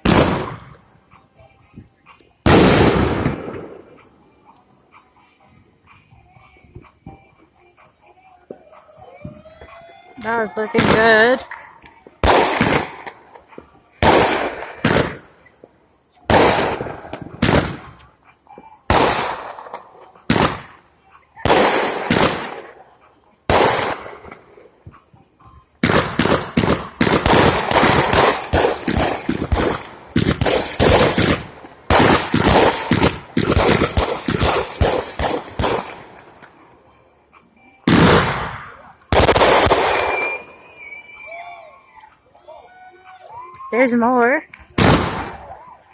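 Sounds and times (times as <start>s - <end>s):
fireworks exploding: 0.0s - 0.8s, 2.4s - 4.1s, 10.5s - 18.0s, 18.6s - 20.8s, 21.4s - 22.8s, 23.5s - 25.0s, 25.8s - 36.6s, 37.9s - 41.4s, 44.7s - 45.6s.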